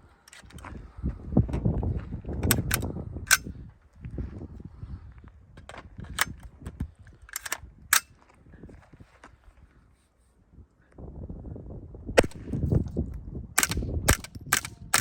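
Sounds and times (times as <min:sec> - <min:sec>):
wind rumble on microphone: 0:00.0 - 0:15.0
suppressed rifle shots: 0:12.2 - 0:12.7, 0:13.6 - 0:15.0.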